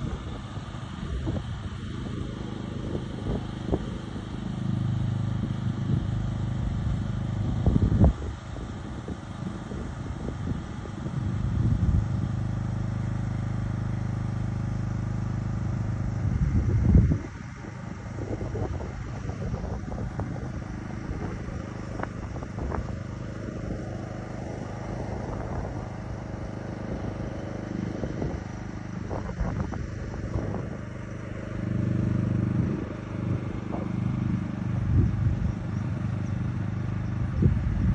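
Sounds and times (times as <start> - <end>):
motor engine running: 0.0 - 37.9.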